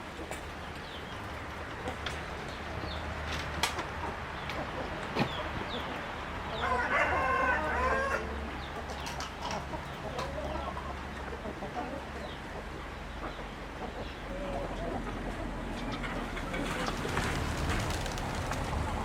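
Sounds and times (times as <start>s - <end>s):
hens clucking: 0.0s - 19.0s
rooster crowing: 6.6s - 8.4s.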